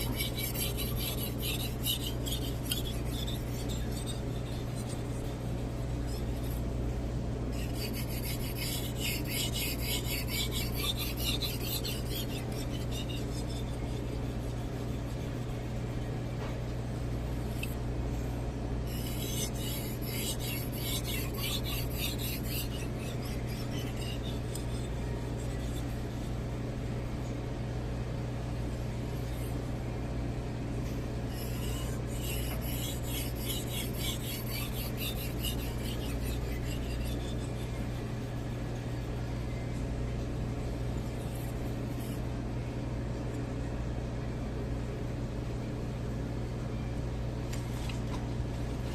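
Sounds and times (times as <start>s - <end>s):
knife scraping on whetstone: 0.0s - 6.6s, 7.6s - 16.1s, 18.9s - 26.4s, 31.3s - 39.6s.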